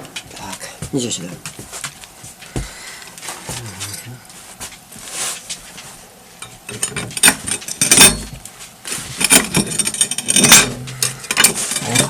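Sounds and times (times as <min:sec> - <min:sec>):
dull knocks: 0:02.5 - 0:02.8
metal cookware clanking: 0:09.2 - 0:12.0.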